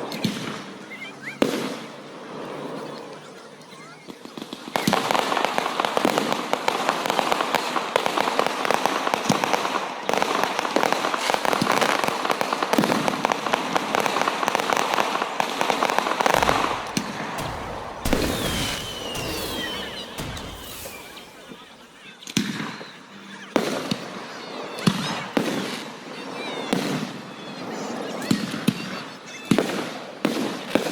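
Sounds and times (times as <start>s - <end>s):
fireworks crackling: 0.0s - 22.9s
firework shells booming: 4.8s - 22.7s
falling firework whistle: 15.6s - 22.8s.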